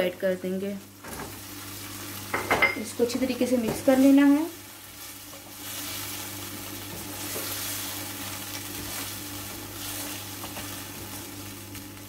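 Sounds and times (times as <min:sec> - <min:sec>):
food sizzling in hot oil: 0:00.5 - 0:12.0
spatula stirring in wok: 0:03.8 - 0:11.6.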